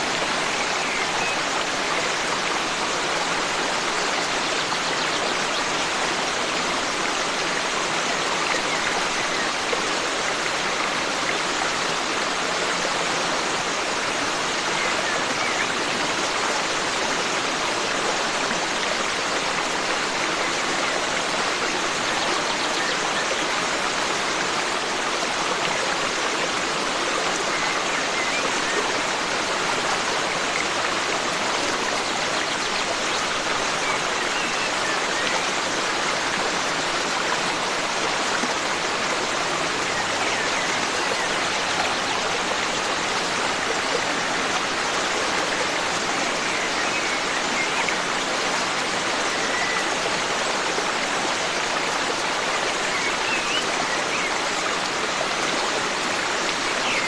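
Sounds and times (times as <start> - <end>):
stream flowing: 0.0 - 57.0.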